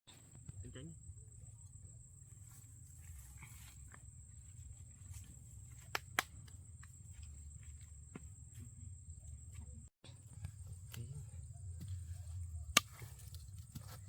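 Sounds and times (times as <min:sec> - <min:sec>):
light footsteps: 0:10.4 - 0:14.0.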